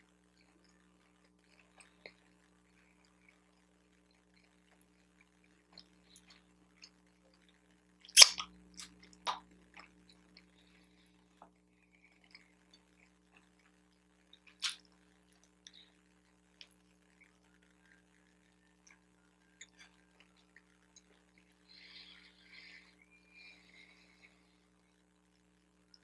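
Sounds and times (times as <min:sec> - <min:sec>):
person chewing food: 0:00.4 - 0:15.9
mouth smacks: 0:08.1 - 0:10.2, 0:14.4 - 0:14.8.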